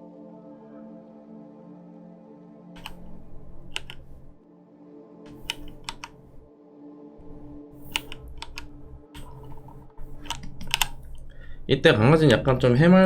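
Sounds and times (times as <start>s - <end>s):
faint background music: 0.0s - 13.0s
keyboard keys clicking: 2.8s - 4.4s, 5.3s - 6.4s, 7.3s - 11.3s.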